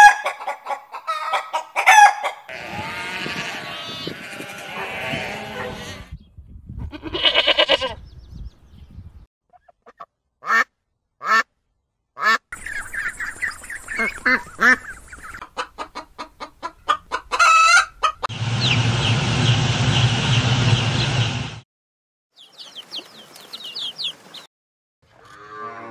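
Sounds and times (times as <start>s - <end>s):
ducks quacking: 0.2s - 6.1s, 9.5s - 11.5s, 12.2s - 18.8s
animal calls: 1.1s - 6.1s
chicks peeping: 12.6s - 21.3s, 22.4s - 24.5s
steady low hum: 18.3s - 21.6s.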